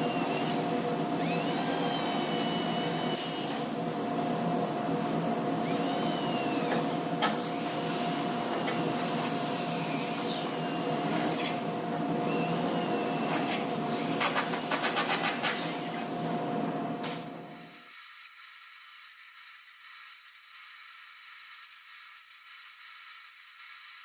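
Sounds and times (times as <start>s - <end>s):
electric motor whining: 0.0s - 3.7s.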